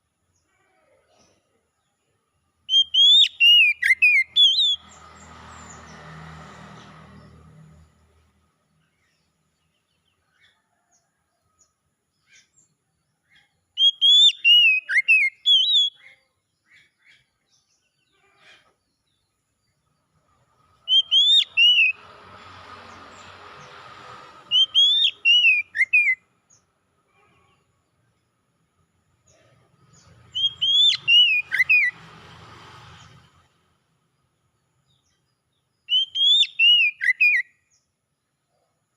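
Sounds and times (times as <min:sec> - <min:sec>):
bird whistled song: 0:02.7 - 0:05.0, 0:13.3 - 0:17.3, 0:20.8 - 0:22.1, 0:24.5 - 0:26.2, 0:30.0 - 0:32.0, 0:35.8 - 0:37.8.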